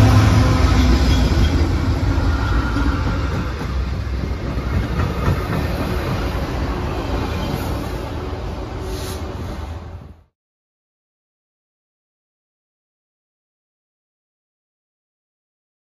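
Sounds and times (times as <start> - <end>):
train wheels clicking on rails: 0.0 - 8.2
diesel locomotive rumble: 0.0 - 10.3.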